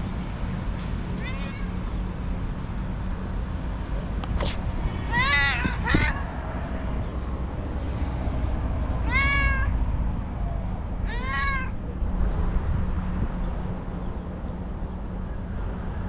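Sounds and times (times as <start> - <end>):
steady low rumble: 0.0 - 16.0
cat meowing: 1.2 - 1.8, 5.0 - 6.3, 9.0 - 9.8, 11.0 - 11.8.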